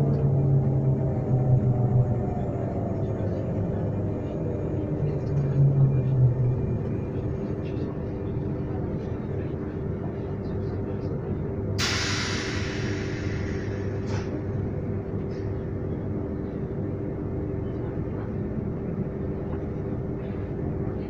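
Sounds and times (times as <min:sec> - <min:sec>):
train rumble and hum: 0:00.0 - 0:21.0
loud air hiss: 0:11.8 - 0:14.4.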